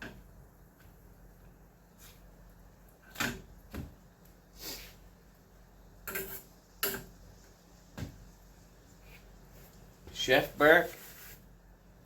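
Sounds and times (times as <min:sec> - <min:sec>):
pan and utensils clattering: 0:06.0 - 0:07.2.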